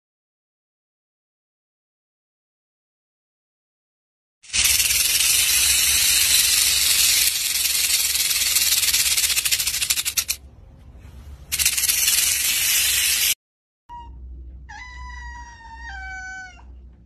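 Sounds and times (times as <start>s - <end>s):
snake hissing: 4.5s - 10.4s, 11.5s - 13.4s.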